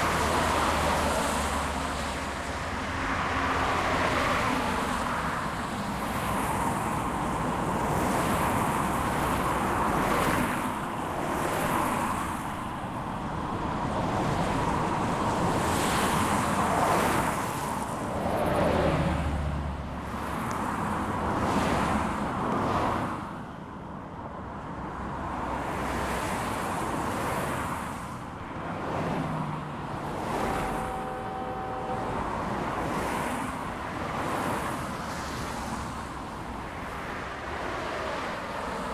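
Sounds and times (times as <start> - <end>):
freight train rumbling past: 28.8 - 35.0
brief pitched tone: 30.4 - 32.4.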